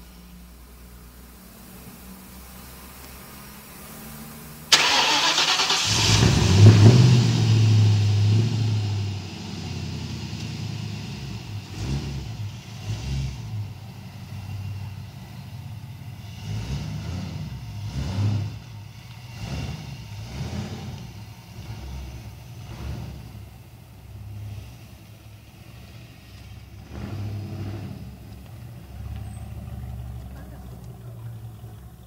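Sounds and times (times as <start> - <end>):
car engine revving and idling: 0.0 - 32.0
engine starter cranking: 4.7 - 7.5.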